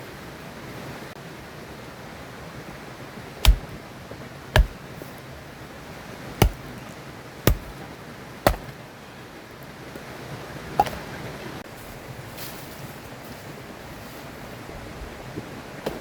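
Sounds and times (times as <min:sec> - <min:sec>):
blade chopping wood: 0:03.4 - 0:03.8, 0:04.6 - 0:04.9, 0:06.4 - 0:06.8, 0:07.5 - 0:07.8, 0:08.5 - 0:08.8.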